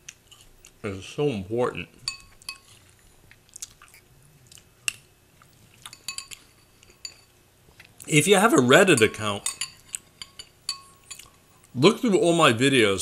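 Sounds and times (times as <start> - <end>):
chewing crunchy cereal: 0.0 - 0.8, 2.3 - 7.1
spoon clinking against bowl: 2.0 - 2.8, 5.9 - 7.3, 8.8 - 11.4.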